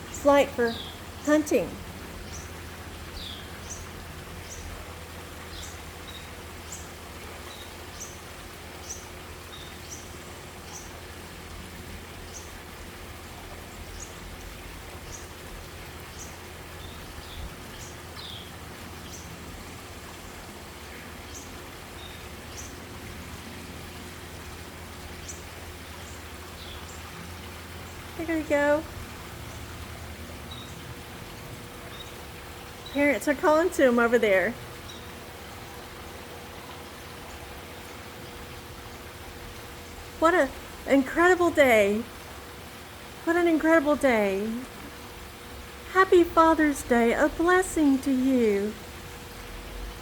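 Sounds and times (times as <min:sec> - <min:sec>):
songbird chirping: 0:00.0 - 0:04.7
steady low hum: 0:00.0 - 0:50.0.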